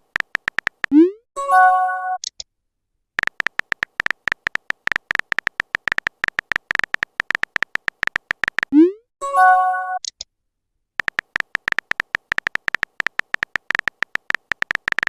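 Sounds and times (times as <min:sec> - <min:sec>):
rapid typing clicks: 0:00.0 - 0:01.0, 0:03.2 - 0:08.8, 0:11.0 - 0:15.0.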